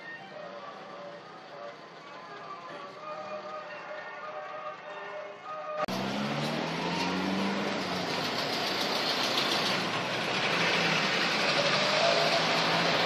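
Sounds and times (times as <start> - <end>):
two-stroke car engine driving past: 5.9 - 13.0.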